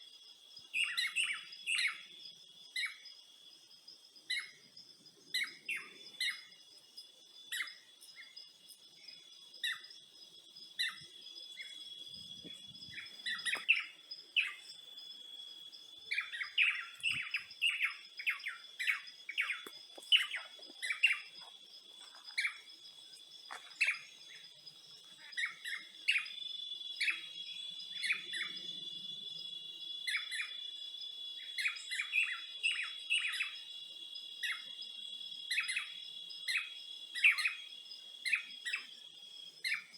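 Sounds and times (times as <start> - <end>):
high insect trill: 0.0 - 39.9
birds chirping: 4.2 - 30.7.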